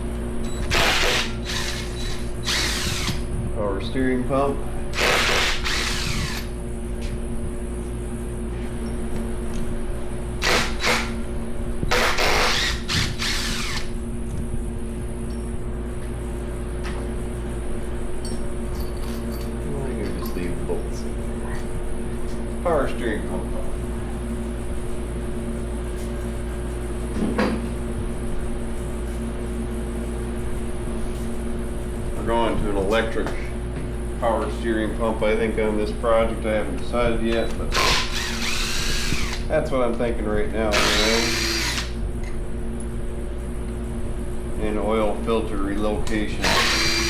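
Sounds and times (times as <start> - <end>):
workshop hum: 0.0 - 47.0
power tool bursts: 0.6 - 3.2, 4.9 - 6.5, 10.4 - 11.2, 11.9 - 13.9, 37.7 - 39.5, 40.7 - 42.0, 46.4 - 47.0.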